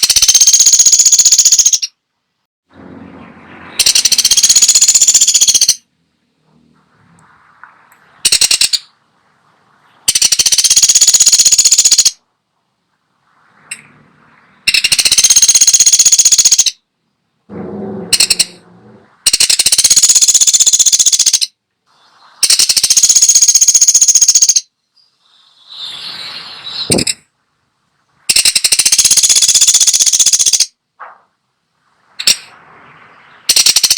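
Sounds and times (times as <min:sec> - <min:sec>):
woodpecker rattling trills: 0:00.0 - 0:02.0, 0:03.8 - 0:05.8, 0:08.2 - 0:09.0, 0:10.1 - 0:12.2, 0:14.6 - 0:16.8, 0:17.6 - 0:21.5, 0:22.4 - 0:25.8, 0:28.3 - 0:30.8, 0:33.4 - 0:33.9.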